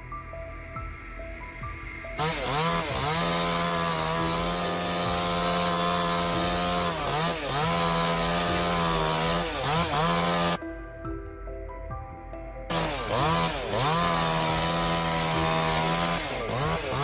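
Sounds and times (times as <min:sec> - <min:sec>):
chainsaw cutting wood: 0:02.2 - 0:10.6, 0:12.7 - 0:17.0.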